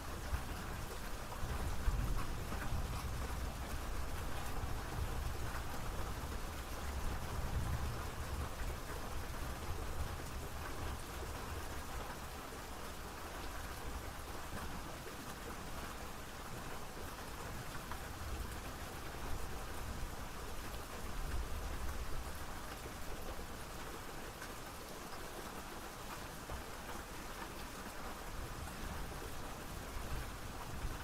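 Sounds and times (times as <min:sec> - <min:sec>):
rain falling on a surface: 0:00.0 - 0:31.0.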